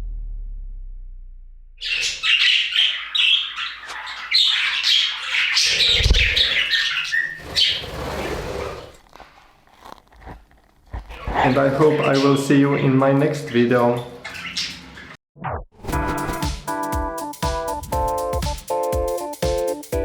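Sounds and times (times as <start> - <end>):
low thud: 0.0 - 1.8
budgerigars chattering and squawking: 1.8 - 8.0, 11.4 - 15.2.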